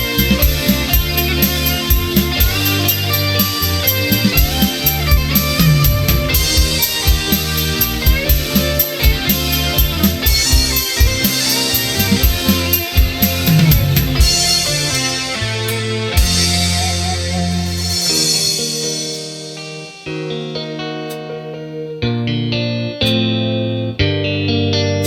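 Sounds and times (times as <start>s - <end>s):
bass line: 0.0s - 19.0s
drum kit beat: 0.0s - 20.4s
electric guitar: 0.0s - 25.0s.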